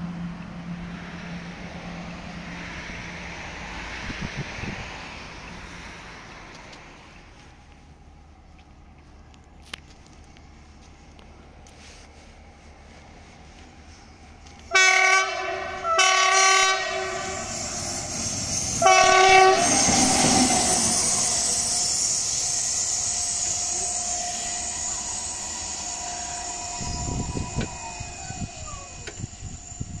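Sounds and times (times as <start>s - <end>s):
train passing rumble: 0.0s - 30.0s
locomotive horn blasts: 14.7s - 17.6s, 18.8s - 21.5s.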